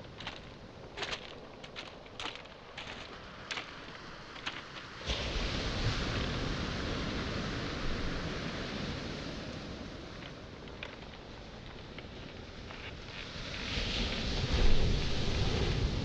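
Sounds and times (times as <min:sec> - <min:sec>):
footsteps on pebbles: 0:00.0 - 0:05.2, 0:10.1 - 0:13.6
water washing over stones: 0:00.0 - 0:16.0
wave breaking on pebble shore: 0:00.0 - 0:16.0.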